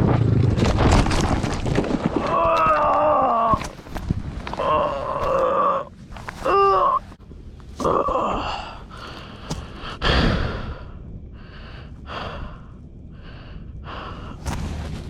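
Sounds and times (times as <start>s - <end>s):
low rumble: 0.0s - 15.0s
person breathing hard: 7.8s - 14.9s.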